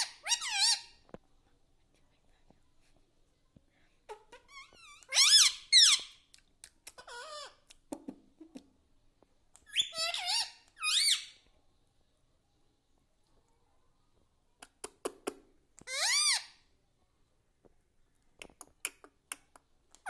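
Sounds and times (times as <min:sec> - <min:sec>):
parrot squeaky calls: 0:00.0 - 0:01.0, 0:04.1 - 0:06.2, 0:07.0 - 0:07.6, 0:09.7 - 0:11.4, 0:15.8 - 0:16.6.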